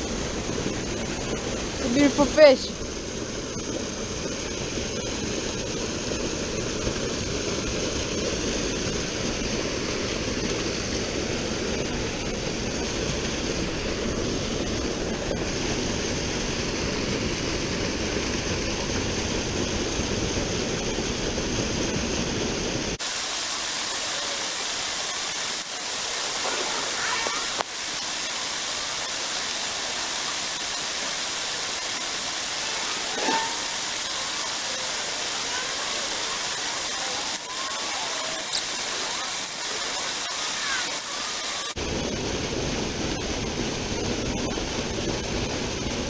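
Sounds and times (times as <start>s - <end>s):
forest river rushing: 23.0s - 41.8s.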